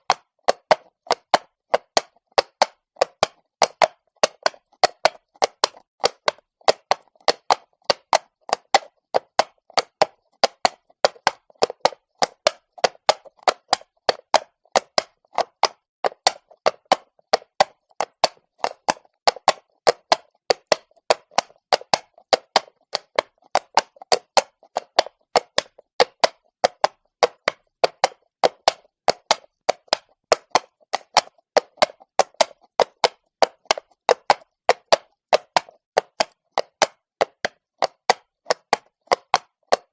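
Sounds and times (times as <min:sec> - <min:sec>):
horse hooves on cobblestones: 0:00.1 - 0:39.9.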